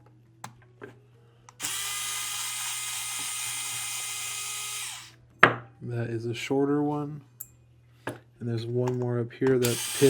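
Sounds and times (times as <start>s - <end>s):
electric screwdriver whine: 1.6s - 5.1s, 9.6s - 10.0s.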